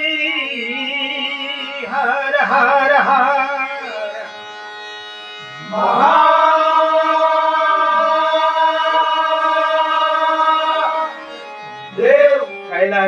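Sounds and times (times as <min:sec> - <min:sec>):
steady drone: 0:00.0 - 0:13.0
man singing long note: 0:05.6 - 0:13.0.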